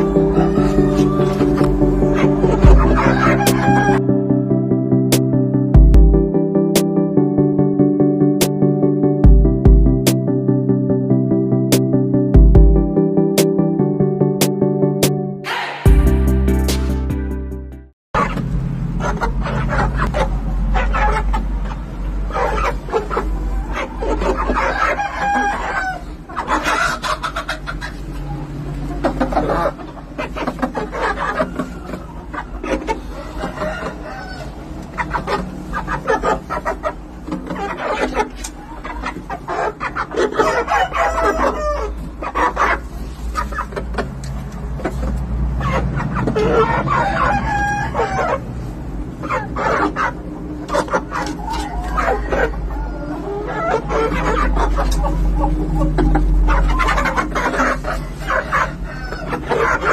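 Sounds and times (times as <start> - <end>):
rooster crowing: 0.0 - 4.0, 33.1 - 34.7, 40.4 - 42.0, 46.8 - 48.4, 58.7 - 59.6
hens clucking: 0.0 - 4.2, 18.2 - 59.9
roosters crowing: 0.0 - 4.2, 22.3 - 42.9, 45.6 - 59.9
steady low rumble: 0.0 - 6.4.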